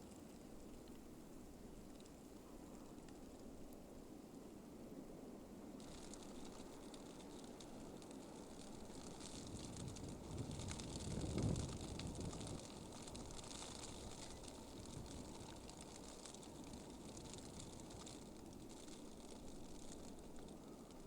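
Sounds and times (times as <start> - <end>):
steady wind hiss: 0.0 - 21.0
fine scattered ticking: 5.8 - 21.0
wind buffeting microphone: 7.8 - 18.6.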